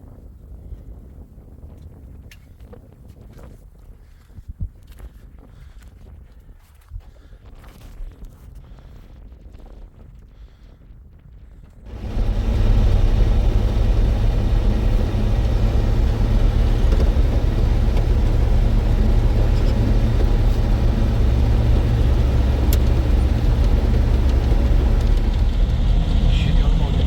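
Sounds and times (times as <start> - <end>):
vehicle engine rumbling: 11.9 - 27.0.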